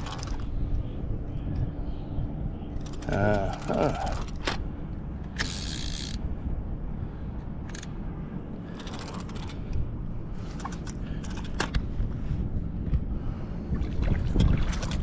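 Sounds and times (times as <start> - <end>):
steady low rumble: 0.0 - 15.0
fishing reel clicking: 5.3 - 6.2.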